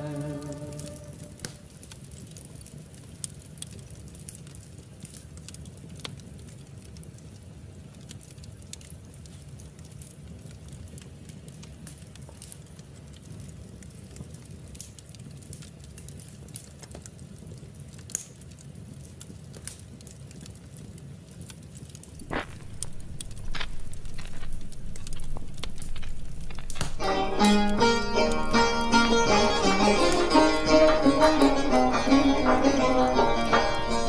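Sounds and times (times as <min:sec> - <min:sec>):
string instrument music: 0:00.0 - 0:01.6, 0:22.2 - 0:34.0
fireplace crackling and popping: 0:00.0 - 0:34.0
low steady rumble: 0:22.2 - 0:34.0.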